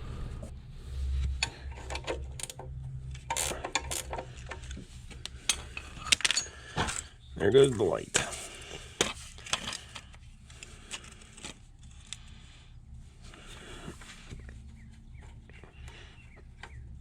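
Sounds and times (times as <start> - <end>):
faint low hum: 0.0 - 17.0
hand tools clicking and knocking: 1.4 - 4.8, 5.4 - 8.4.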